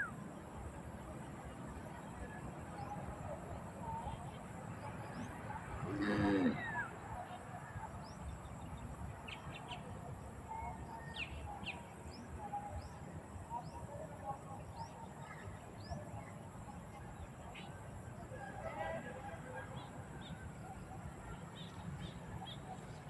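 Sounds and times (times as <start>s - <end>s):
birds chirping: 19.5s - 23.0s.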